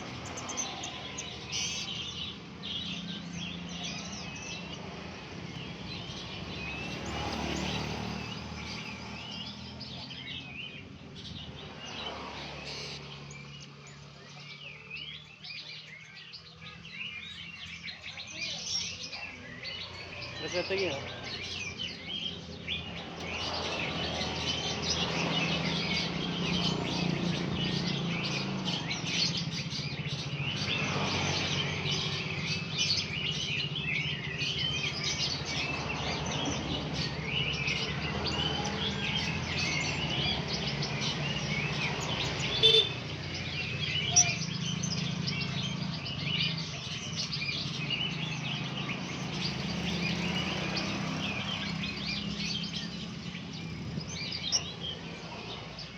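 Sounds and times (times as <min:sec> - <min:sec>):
parrots chirping: 0:37.4 - 0:55.7.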